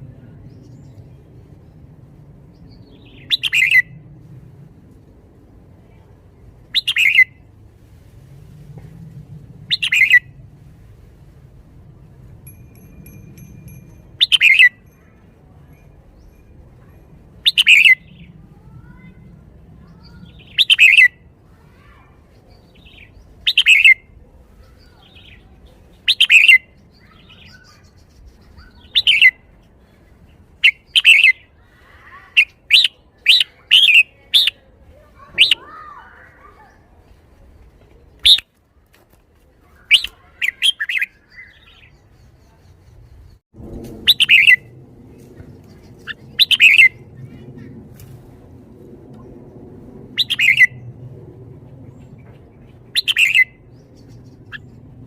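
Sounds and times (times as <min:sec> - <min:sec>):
bird singing short phrases: 0:02.9 - 0:03.8, 0:39.8 - 0:42.9, 0:50.2 - 0:50.8.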